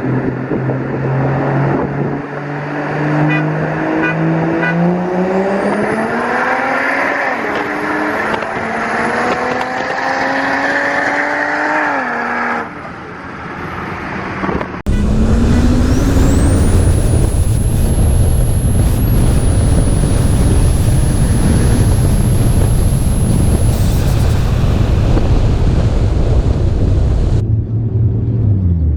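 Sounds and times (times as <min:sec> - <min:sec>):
thin high whine: 0:14.9 - 0:27.4
car engine accelerating: 0:14.9 - 0:28.9
loud low rumble: 0:14.9 - 0:28.9.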